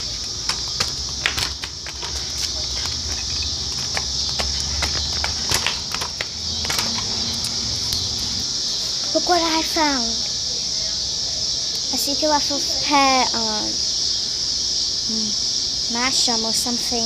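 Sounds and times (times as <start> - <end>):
scooter wheels rumbling on pavement: 0.0 - 8.5.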